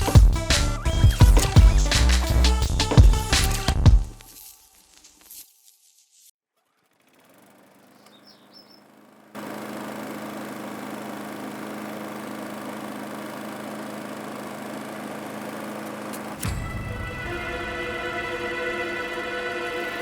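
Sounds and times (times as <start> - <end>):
bird chirps: 8.0 - 8.8
lawn mower engine running: 8.8 - 16.4.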